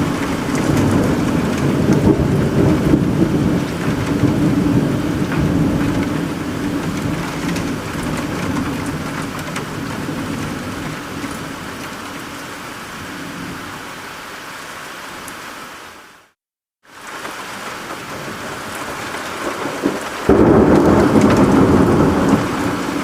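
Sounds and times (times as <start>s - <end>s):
low rumble of thunder: 0.0s - 12.2s, 18.0s - 23.0s
raindrops ticking: 0.0s - 12.4s
steady rain: 0.0s - 23.0s.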